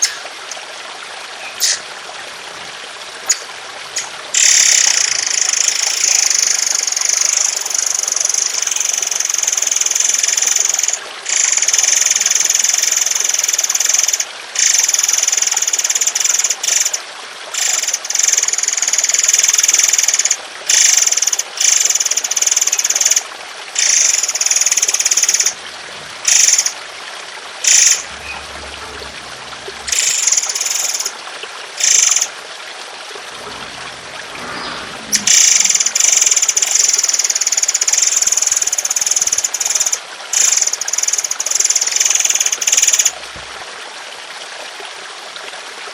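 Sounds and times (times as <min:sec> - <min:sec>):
water trickling: 0:00.0 - 0:45.9
bird harsh rattling song: 0:01.4 - 0:02.6, 0:03.2 - 0:06.7, 0:27.6 - 0:31.1, 0:33.4 - 0:37.4.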